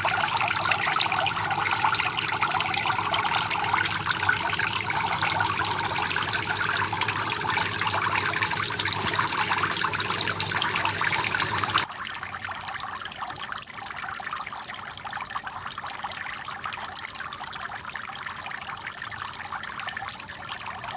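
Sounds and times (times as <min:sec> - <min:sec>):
low steady hum: 0:00.0 - 0:11.8
fountain water trickling and splashing: 0:00.0 - 0:20.8.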